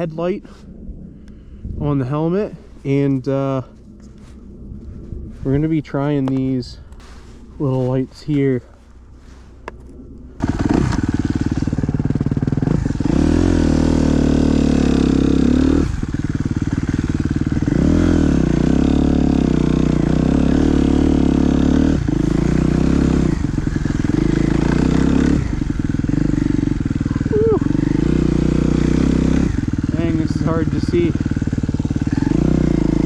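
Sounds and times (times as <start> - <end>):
dirt bike engine revving: 10.4 - 33.0.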